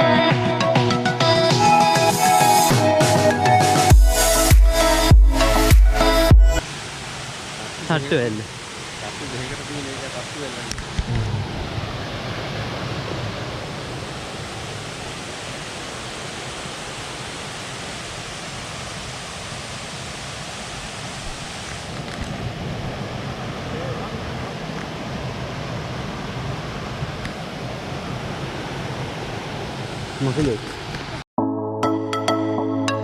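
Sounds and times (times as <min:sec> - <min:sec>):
waterfall roaring: 0:06.6 - 0:31.2.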